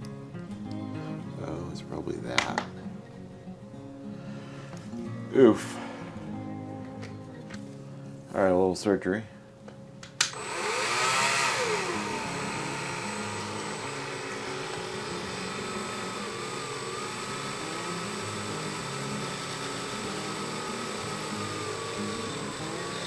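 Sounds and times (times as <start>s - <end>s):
rotary tool whining: 10.3s - 23.0s.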